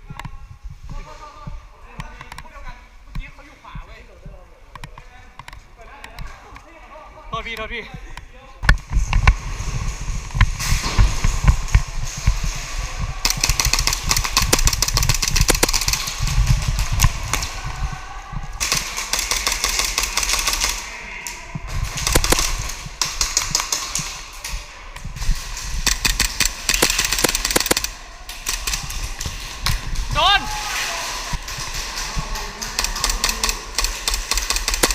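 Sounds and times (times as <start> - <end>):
airsoft pistols firing: 13.2 - 17.1, 18.6 - 20.8, 21.9 - 24.2, 25.8 - 29.0, 32.6 - 34.9.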